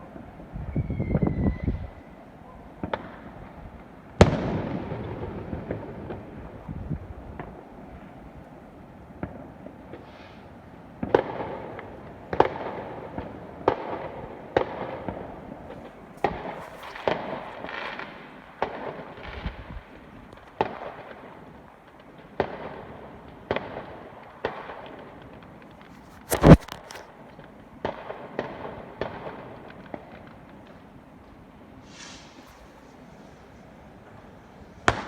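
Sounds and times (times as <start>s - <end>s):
fireworks bangs: 11.0s - 21.3s, 21.9s - 27.2s, 31.8s - 35.0s.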